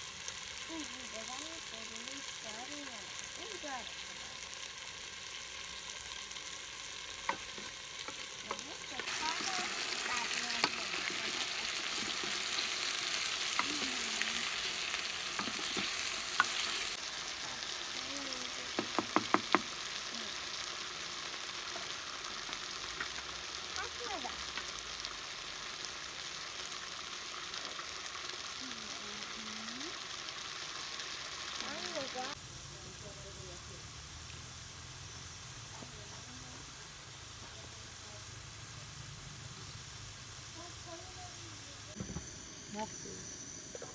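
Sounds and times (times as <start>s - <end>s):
food sizzling in a pan: 0.0s - 43.9s
sharp knocks: 18.8s - 19.7s.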